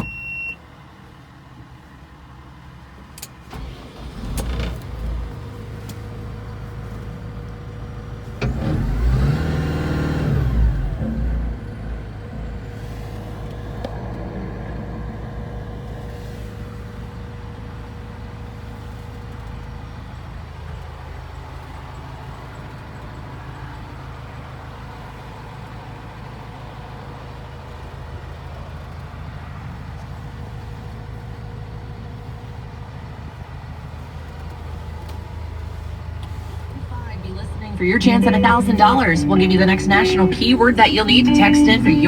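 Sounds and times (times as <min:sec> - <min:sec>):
diesel engine running: 0:03.5 - 0:19.1, 0:36.7 - 0:42.0
faint steady whine: 0:36.8 - 0:42.0.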